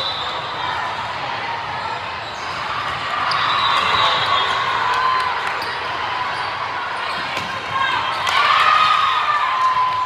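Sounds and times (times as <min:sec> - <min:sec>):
crowd noise in indoor hall: 0:00.0 - 0:10.0.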